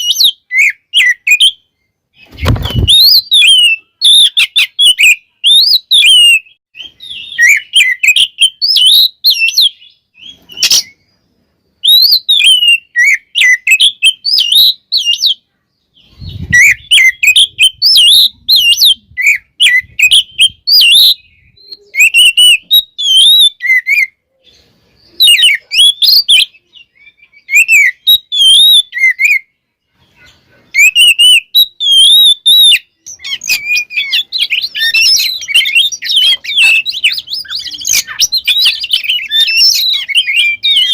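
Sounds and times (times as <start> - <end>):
magpie-robin singing: 0.0 - 40.9.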